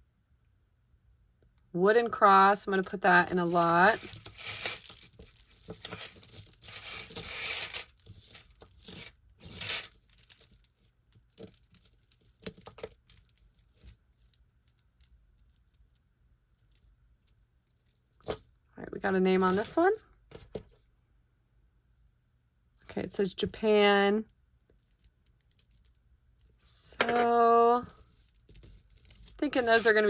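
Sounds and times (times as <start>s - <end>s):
metal jewelry clinking and rattling: 3.2s - 15.9s, 26.8s - 30.0s.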